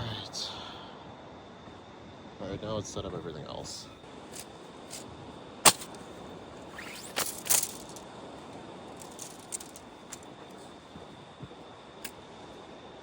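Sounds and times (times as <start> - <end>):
steady background hiss: 0.0 - 13.0
rustling: 4.3 - 5.0, 5.7 - 6.0, 6.7 - 8.0, 9.0 - 10.2
tent gear clacking: 4.3 - 5.0, 5.7 - 6.0, 6.7 - 8.0, 9.0 - 10.2.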